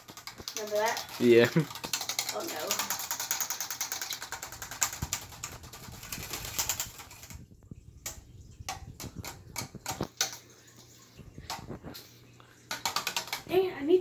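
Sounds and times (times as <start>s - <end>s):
plastic straws crackling and clicking: 0.0s - 13.7s.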